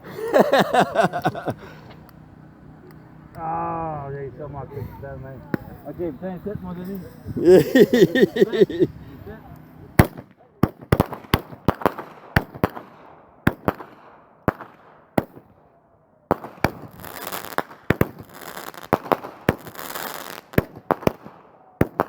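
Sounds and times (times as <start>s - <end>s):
fireworks crackling: 0.0s - 3.5s, 5.1s - 15.5s, 16.3s - 22.0s
fireworks bangs: 10.0s - 15.5s, 16.3s - 22.0s.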